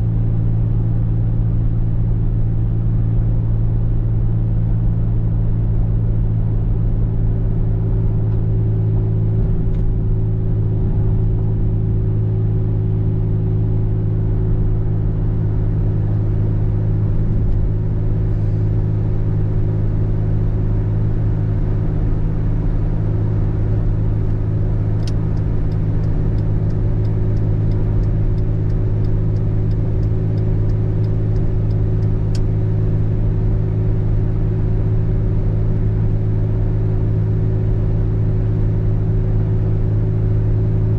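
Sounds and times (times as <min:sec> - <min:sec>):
car driving drone: 0:00.0 - 0:40.9
faint ticks: 0:25.0 - 0:32.5.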